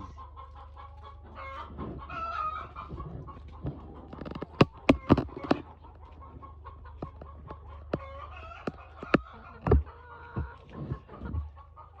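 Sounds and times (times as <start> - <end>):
chickens clucking: 0.0 - 12.0
sharp clicks and knocks: 3.6 - 5.7, 7.0 - 11.5.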